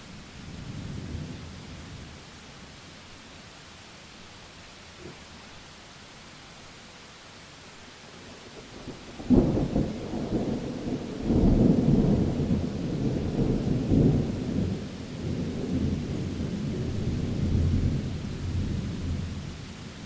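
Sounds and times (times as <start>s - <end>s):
rain hiss: 0.0s - 20.0s
thunder clap and rumble: 0.5s - 2.2s, 8.9s - 19.4s.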